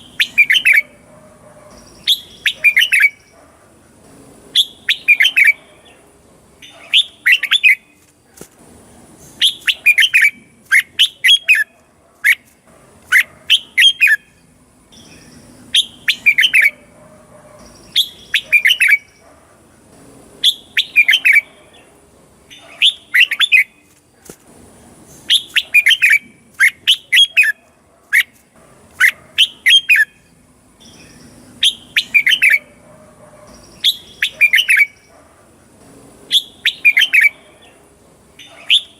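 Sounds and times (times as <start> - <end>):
bulbul whistled song: 0.0 - 1.0, 1.8 - 3.4, 4.6 - 5.7, 6.6 - 8.0, 9.4 - 11.7, 13.1 - 16.9, 17.6 - 19.2, 20.4 - 21.5, 22.5 - 23.9, 25.3 - 27.6, 29.0 - 32.8, 33.5 - 35.1, 36.3 - 37.4, 38.4 - 38.9.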